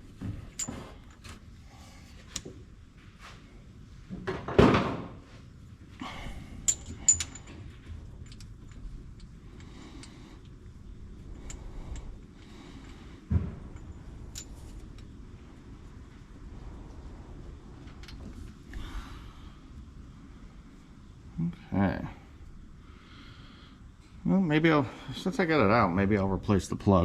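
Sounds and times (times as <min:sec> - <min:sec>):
light metallic clicks and clinks: 0:06.6 - 0:10.6, 0:11.3 - 0:15.1.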